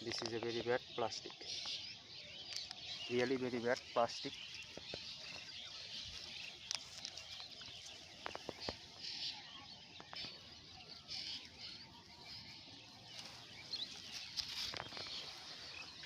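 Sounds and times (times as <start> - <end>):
bird chirps: 0.0 - 16.0
small clicks and rustles: 4.6 - 8.8, 13.1 - 15.5.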